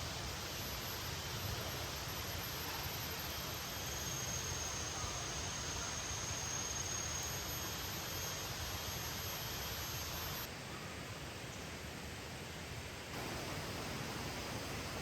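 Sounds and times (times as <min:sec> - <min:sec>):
heavy rain hissing: 0:13.2 - 0:15.0.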